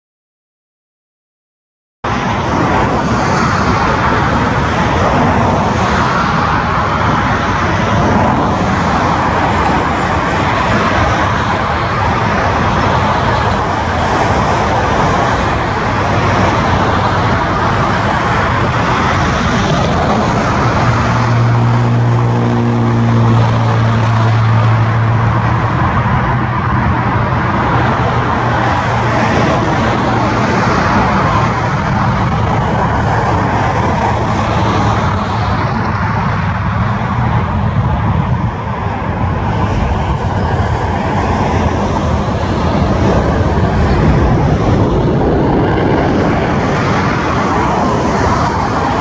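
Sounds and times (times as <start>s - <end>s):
jet engines of passing airliner: 2.1s - 49.0s.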